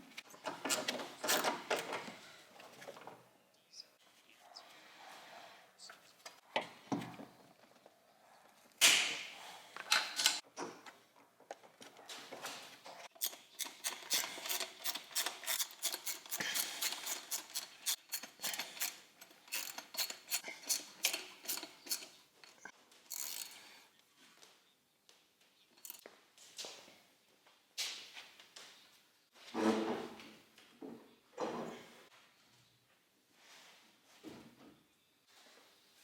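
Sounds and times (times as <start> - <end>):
hand tools clinking on metal: 13.1 - 23.8.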